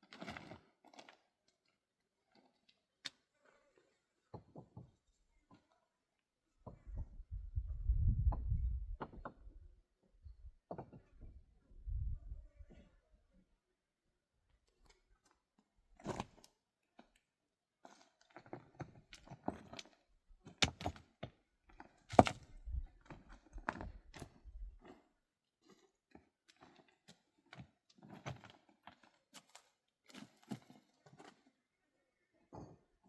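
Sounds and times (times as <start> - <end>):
objects knocking and scraping: 22.1 - 24.0.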